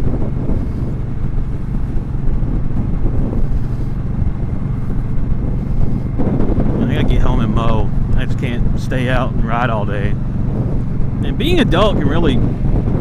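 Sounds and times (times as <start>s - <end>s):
motorcycle engine running: 0.0s - 13.0s
wind noise on microphone: 0.0s - 13.0s.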